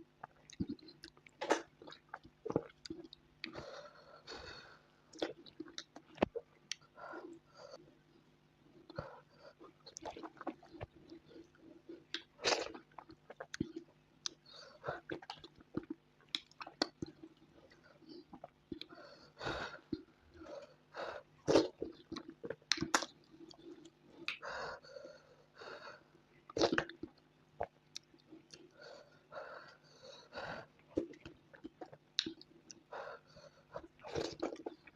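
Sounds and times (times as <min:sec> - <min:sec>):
person chewing and smacking: 0:00.2 - 0:03.6, 0:05.1 - 0:06.8, 0:08.9 - 0:19.0, 0:21.4 - 0:24.5, 0:26.5 - 0:28.8, 0:30.8 - 0:32.9, 0:33.7 - 0:34.9.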